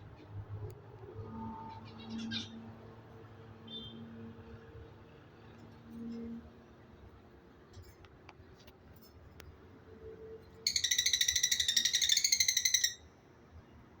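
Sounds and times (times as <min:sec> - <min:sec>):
bird high-pitched trill: 0:10.7 - 0:13.1.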